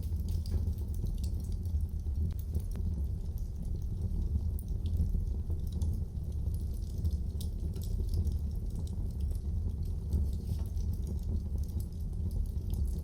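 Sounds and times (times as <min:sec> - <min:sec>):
fire crackling and popping: 0:00.0 - 0:13.0
flames rumbling: 0:00.0 - 0:13.0.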